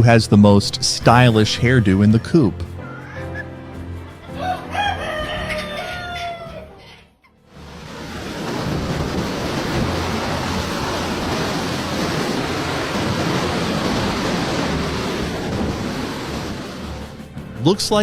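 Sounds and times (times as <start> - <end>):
strong wind buffeting microphone: 7.6 - 17.2.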